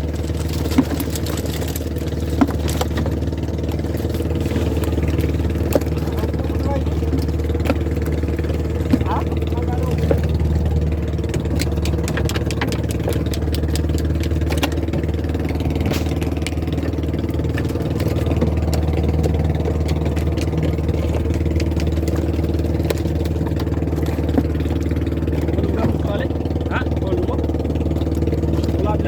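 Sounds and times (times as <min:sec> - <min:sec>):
boat engine idling: 0:00.0 - 0:29.0
sharp clicks and knocks: 0:09.9 - 0:24.6.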